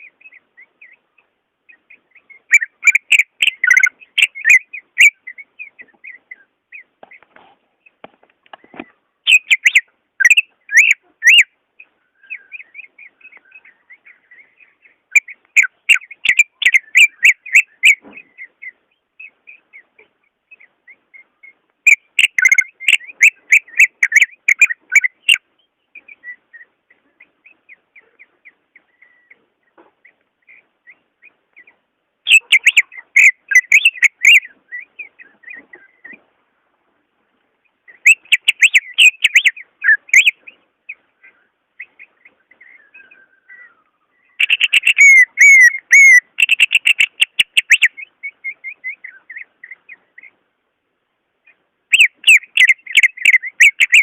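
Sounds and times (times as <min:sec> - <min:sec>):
soft bird twittering: 0:00.0 - 0:36.3, 0:37.6 - 0:50.6, 0:51.4 - 0:54.0
bird whistling rapid notes: 0:38.0 - 0:40.4, 0:44.4 - 0:49.0, 0:51.9 - 0:54.0.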